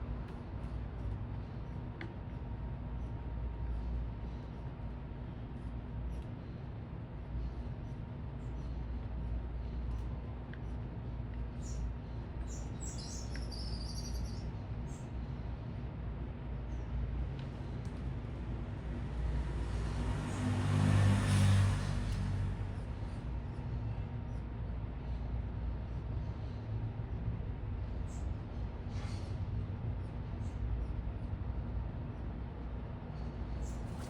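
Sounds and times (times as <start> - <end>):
city traffic rumble: 0.0 - 34.0
small birds chirping: 7.4 - 15.4, 33.2 - 34.0.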